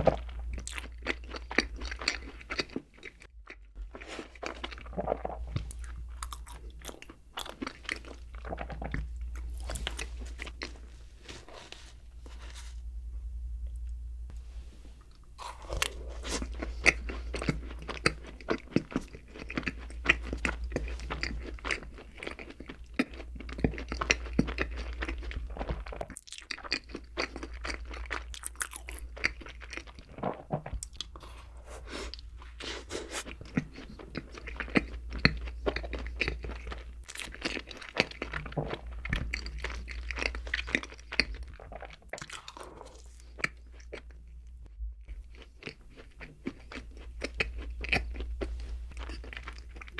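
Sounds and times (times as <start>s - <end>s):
chewing and crunching food: 0.0s - 12.7s, 15.0s - 49.9s
steady low hum: 0.0s - 26.1s.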